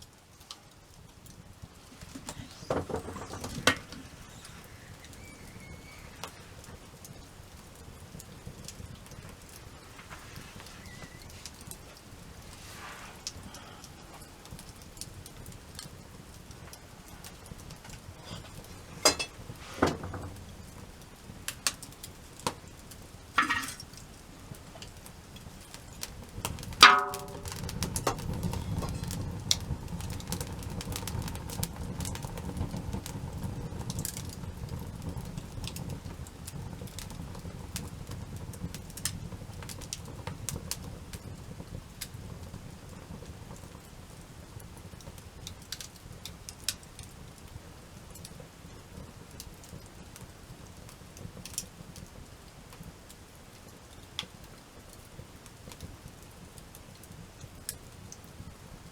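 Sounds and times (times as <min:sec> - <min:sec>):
campfire crackling and popping: 0:00.0 - 0:58.9
low rumble of flames: 0:00.0 - 0:58.9
loud ringing knock: 0:26.8 - 0:27.6.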